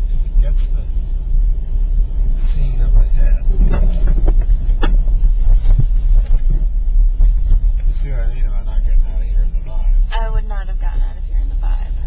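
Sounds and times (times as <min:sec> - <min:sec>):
car rumbling along road: 0:00.0 - 0:12.0.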